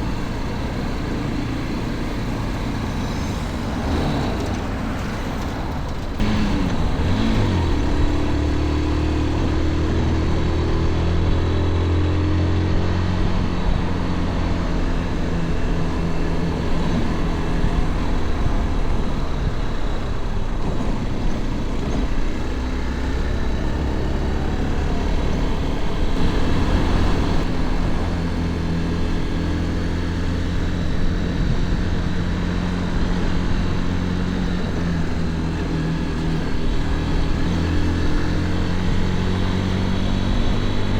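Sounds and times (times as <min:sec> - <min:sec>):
wind and road noise: 0:00.0 - 0:40.9
motorcycle engine accelerating: 0:05.8 - 0:40.9.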